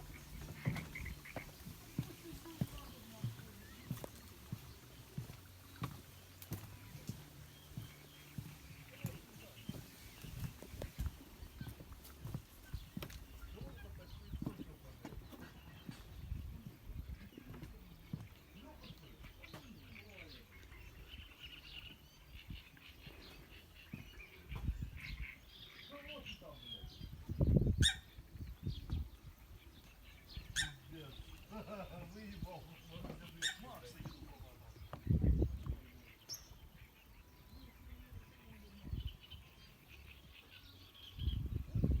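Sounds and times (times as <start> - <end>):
faint birds chirping: 0.0 - 42.0
faint bird chirps: 15.4 - 31.6.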